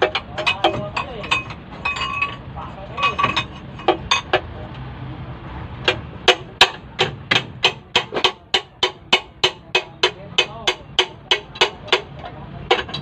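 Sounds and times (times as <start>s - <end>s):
hammer striking metal: 5.8s - 13.0s.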